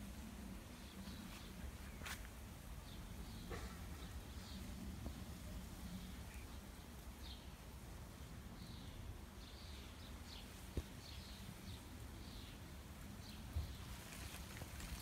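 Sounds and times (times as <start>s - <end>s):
faint bird chirping: 0.6s - 15.0s.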